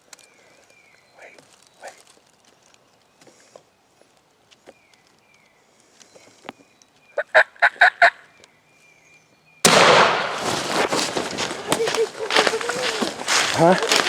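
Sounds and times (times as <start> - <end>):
turkey gobbling: 7.2 - 8.2, 11.4 - 14.0.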